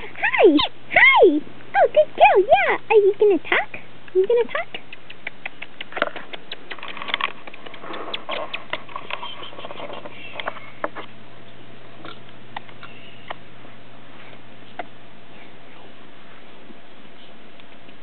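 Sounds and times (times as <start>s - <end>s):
parrot clicking: 4.1s - 8.9s
faint high chirps: 12.8s - 13.4s.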